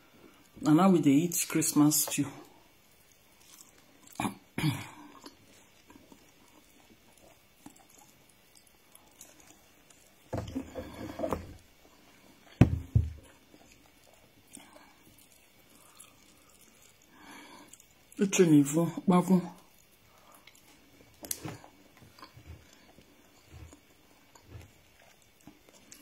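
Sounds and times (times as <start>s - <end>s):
chewing and mouth noises: 2.9s - 11.1s, 13.2s - 18.2s, 19.5s - 26.0s.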